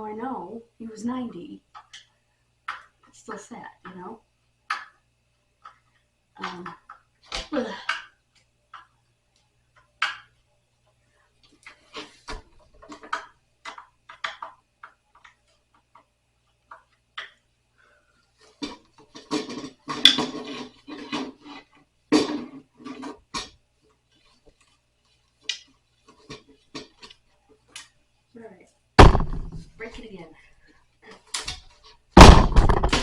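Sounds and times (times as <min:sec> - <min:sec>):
furniture knocks and clatter: 0:29.0 - 0:29.8, 0:32.2 - 0:33.0.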